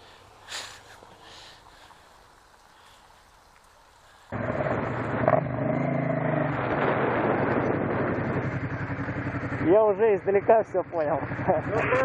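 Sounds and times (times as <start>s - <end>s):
motorcycle engine running: 4.3s - 12.0s.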